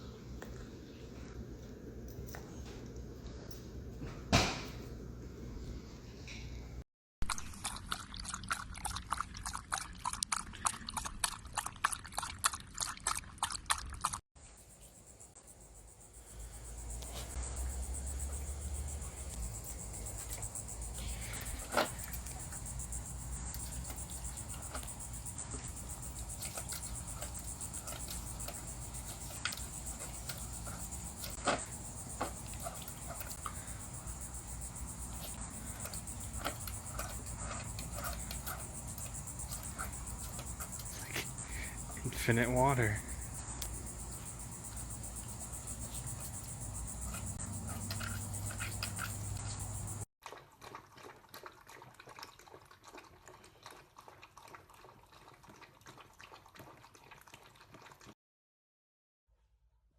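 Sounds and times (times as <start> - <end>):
dog eating wet clicks and smacks: 7.3 - 14.2.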